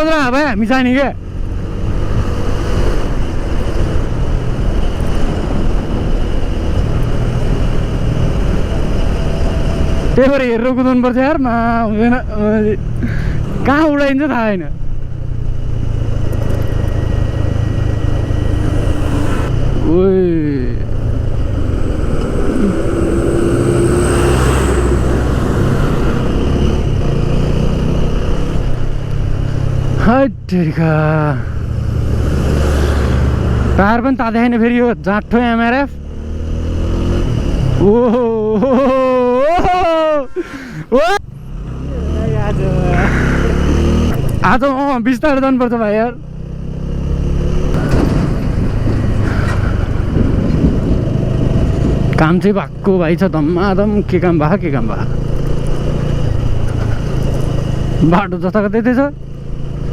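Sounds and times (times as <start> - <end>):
road noise: 0.0 - 59.9
motorcycle engine running: 1.1 - 30.2, 41.3 - 59.9
wind rumbling over microphone: 1.2 - 10.3, 14.7 - 30.0, 47.4 - 52.8.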